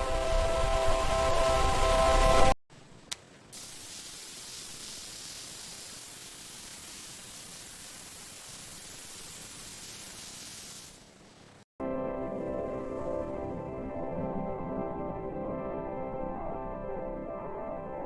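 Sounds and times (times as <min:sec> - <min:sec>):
steady hiss: 0:00.0 - 0:11.7.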